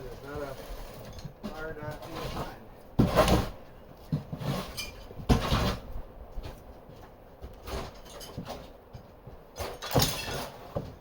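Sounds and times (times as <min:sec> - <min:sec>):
rubbish tumbling: 0:00.0 - 0:06.6, 0:07.4 - 0:11.0
shovel scraping floor: 0:02.0 - 0:03.6, 0:04.3 - 0:05.8, 0:09.6 - 0:11.0.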